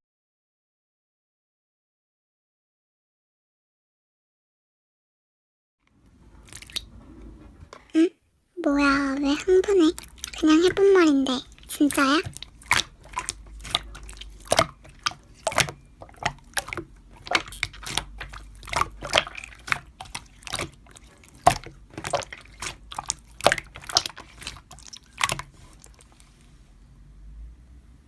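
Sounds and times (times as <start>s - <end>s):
slime squished by hand: 6.4s - 7.0s, 8.8s - 26.5s.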